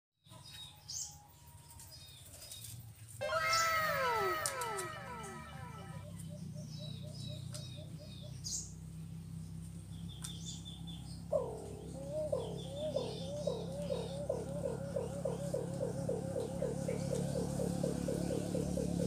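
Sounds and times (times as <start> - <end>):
faint high bird chirps: 0.5 - 8.7
bird calling low down-slurred notes: 3.2 - 8.7, 11.3 - 19.0.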